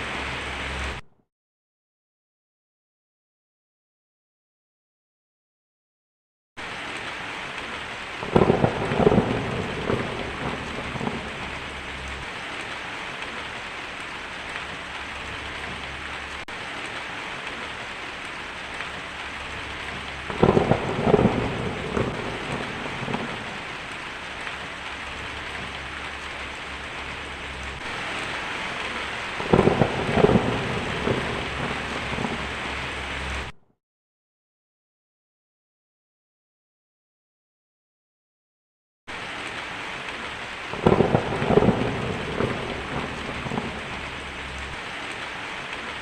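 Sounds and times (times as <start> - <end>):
heavy rain hissing: 0.0 - 1.0, 6.6 - 33.6, 39.1 - 46.0
crackling thunder peals: 6.6 - 33.6, 39.1 - 46.0.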